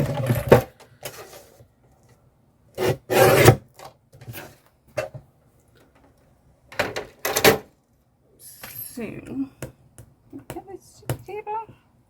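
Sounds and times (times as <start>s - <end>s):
paper rasping scrapes: 2.8s - 3.6s.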